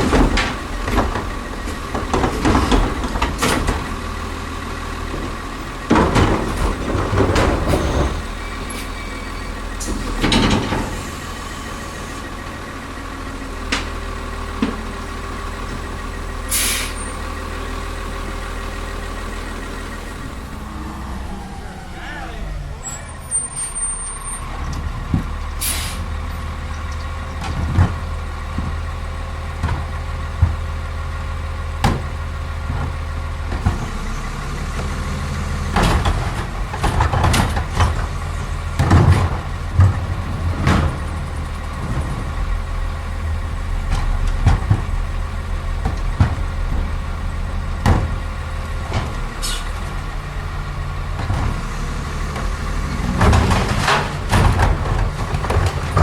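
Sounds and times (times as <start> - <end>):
knocks and bangs: 0.0 - 8.4, 26.4 - 30.9, 31.7 - 34.0, 35.6 - 56.0
garbage truck engine running: 0.0 - 56.0.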